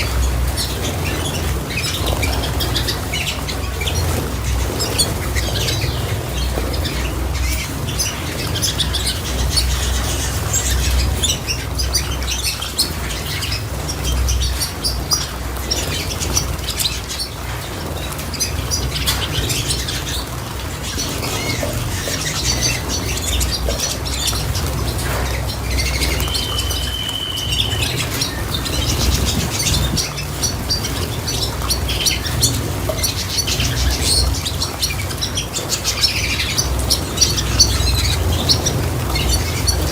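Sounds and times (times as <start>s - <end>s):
small birds chirping: 0.0s - 39.9s
bird whistle: 25.9s - 28.5s.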